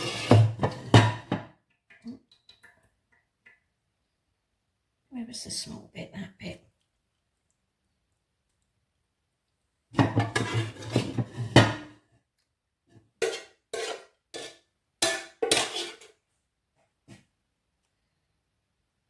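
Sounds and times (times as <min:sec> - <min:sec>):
metal spoon scraping a pan: 0:00.0 - 0:01.4, 0:10.0 - 0:11.9, 0:13.2 - 0:16.2.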